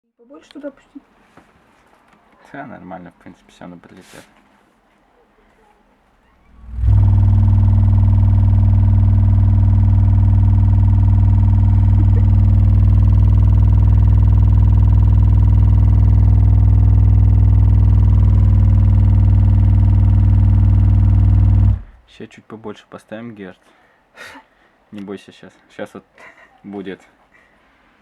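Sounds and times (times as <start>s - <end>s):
deep bass test tone: 6.5s - 22.0s.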